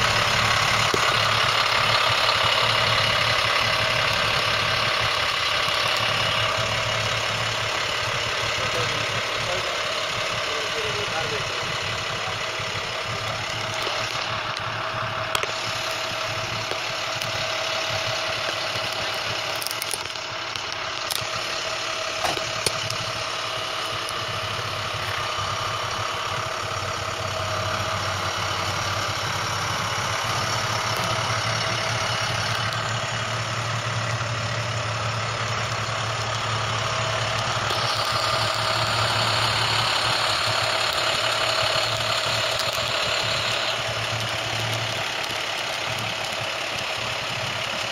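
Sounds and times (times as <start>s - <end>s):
motor idling: 0.0s - 47.9s
sharp clicks: 13.2s - 26.1s, 29.7s - 47.9s.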